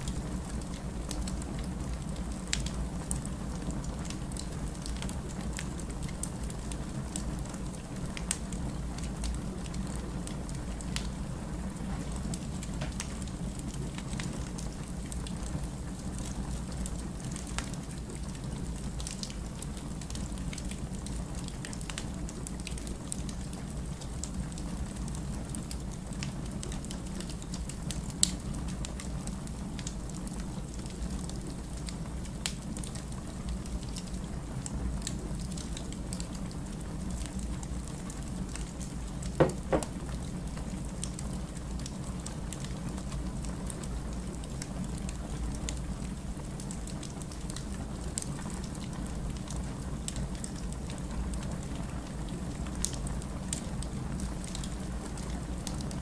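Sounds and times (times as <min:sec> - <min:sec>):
wood fire crackling: 0:09.6 - 0:16.0.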